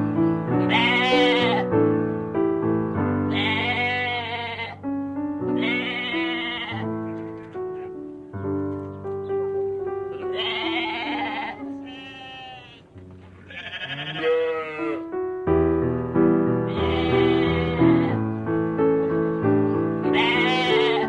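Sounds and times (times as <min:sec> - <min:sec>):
background piano music: 0:00.0 - 0:21.0
sheep bleating: 0:00.6 - 0:01.7, 0:03.3 - 0:04.8, 0:05.6 - 0:06.9, 0:10.2 - 0:15.1, 0:16.7 - 0:18.2, 0:20.1 - 0:21.0.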